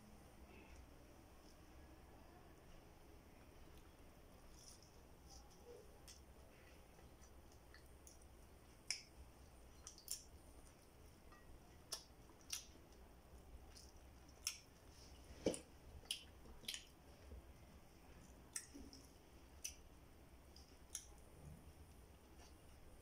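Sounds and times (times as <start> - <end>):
close chewing: 3.7 - 19.9
wet mouth clicks and smacks: 7.0 - 13.0, 15.4 - 17.0, 18.5 - 19.9.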